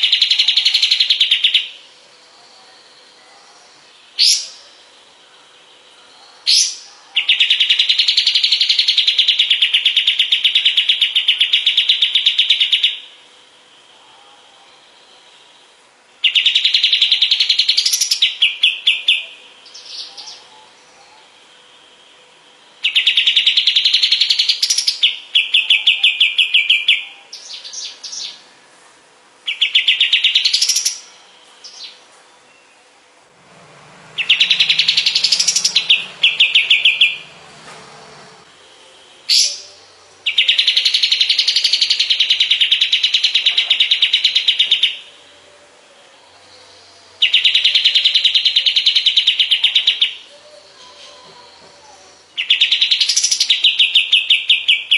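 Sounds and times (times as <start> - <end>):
songbird rattling chirps: 34.2 - 38.6.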